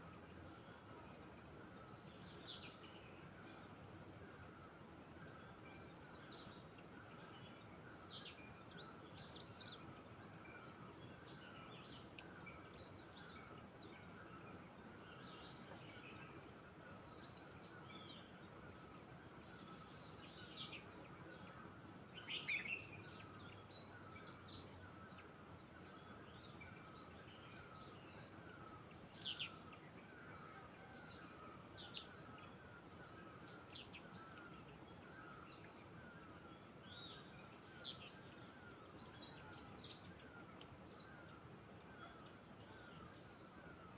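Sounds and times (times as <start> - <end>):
birds chirping and trilling: 36.9 - 41.3.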